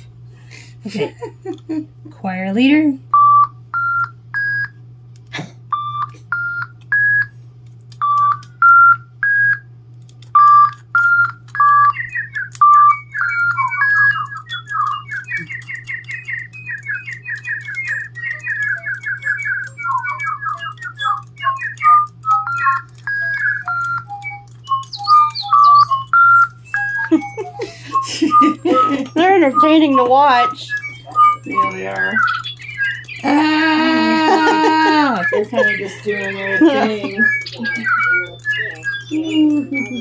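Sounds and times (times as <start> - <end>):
electronic toy birds chirping: 0.5 - 4.8, 5.7 - 40.0.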